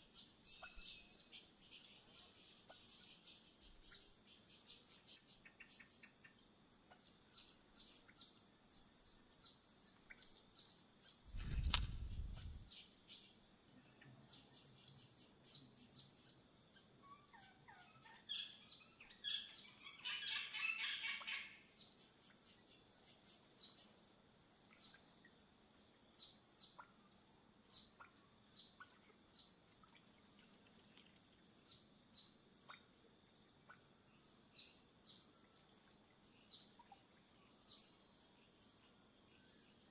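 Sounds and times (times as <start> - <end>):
bird high chirp: 0.0 - 4.2, 5.4 - 25.1
low thud: 11.3 - 12.7.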